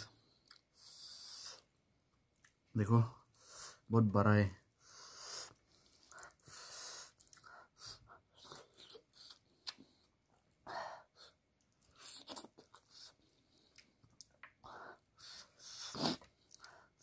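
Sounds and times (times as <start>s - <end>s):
chewing and crunching: 5.5s - 10.6s, 11.2s - 17.0s
wet mouth clicks: 11.6s - 14.6s.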